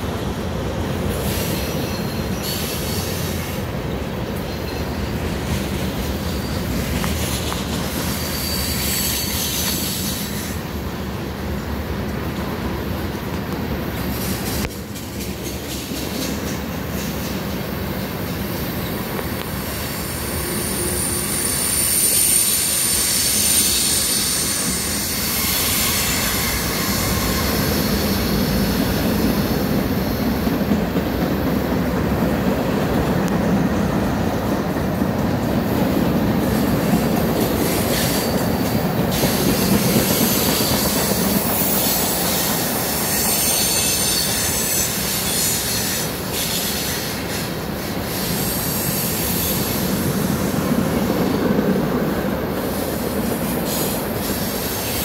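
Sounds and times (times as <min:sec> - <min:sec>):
steel wheels rumbling on rail: 0:00.0 - 0:55.0
high wheel squeal: 0:01.1 - 0:03.7, 0:05.9 - 0:10.7, 0:18.6 - 0:31.2, 0:35.7 - 0:51.4.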